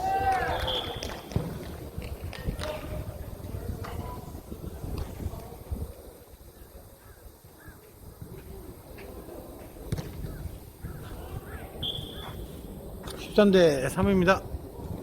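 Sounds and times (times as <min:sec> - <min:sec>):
distant players calling: 0:00.0 - 0:01.4, 0:10.2 - 0:12.7.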